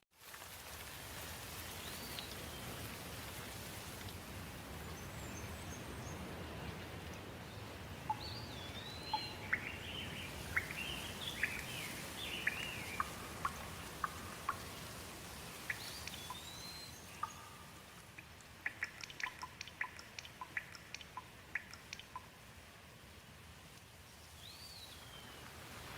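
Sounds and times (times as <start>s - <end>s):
rain pattering: 0.1s - 25.9s
songbirds chirping and singing: 7.5s - 18.0s.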